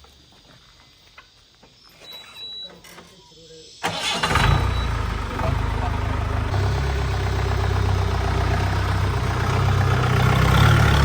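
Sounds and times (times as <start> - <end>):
engine running low rumble: 4.0 - 11.0.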